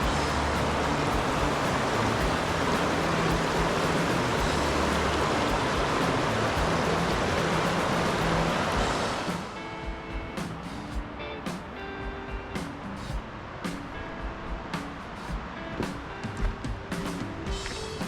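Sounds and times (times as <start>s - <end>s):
river water rushing: 0.0s - 10.9s.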